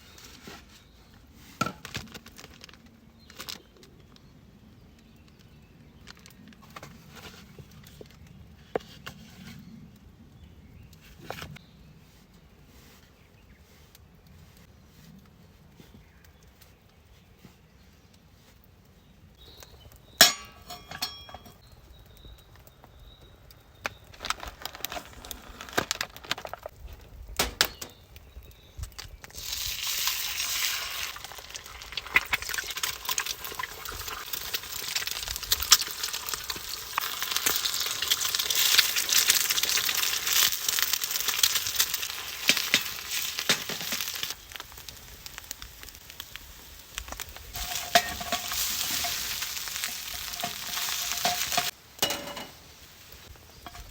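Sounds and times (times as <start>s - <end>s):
crackles in sizzle: 0.0s - 12.0s, 12.7s - 20.6s, 21.5s - 53.9s
utensils clinking on cookware: 20.2s - 21.6s, 47.6s - 52.6s, 53.6s - 53.9s
food sizzling in frying pan: 29.4s - 53.9s.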